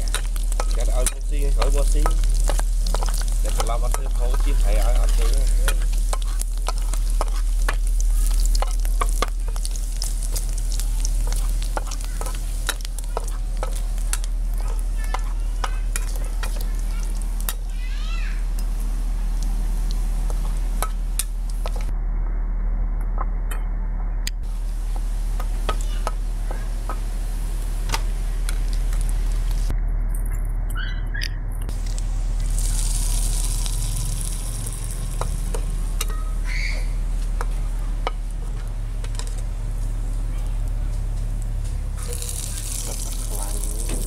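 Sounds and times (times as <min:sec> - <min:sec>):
metal spatula scraping a wok: 0:00.0 - 0:10.6
food sizzling in hot oil: 0:00.0 - 0:21.9, 0:24.4 - 0:29.7, 0:31.7 - 0:40.2, 0:41.8 - 0:44.0
steady low hum: 0:00.0 - 0:44.0.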